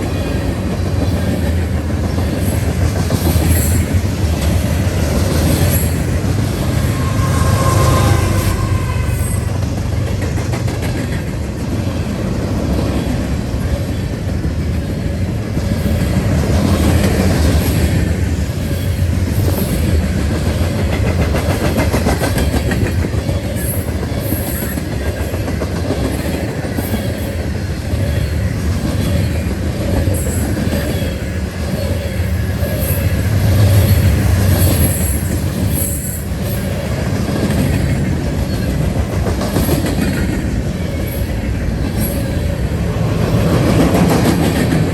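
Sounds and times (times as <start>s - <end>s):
steel wheels rumbling on rail: 0.0s - 44.9s
high wheel squeals: 3.4s - 10.0s.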